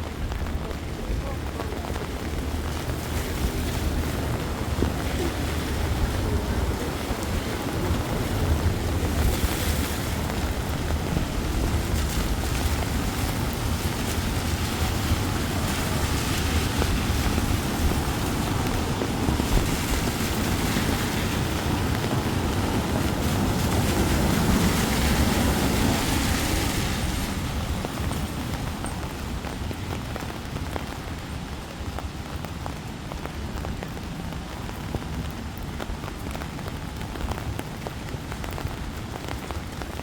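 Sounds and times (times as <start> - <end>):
heavy low rumble: 0.0 - 29.4
steady rain: 0.0 - 40.0.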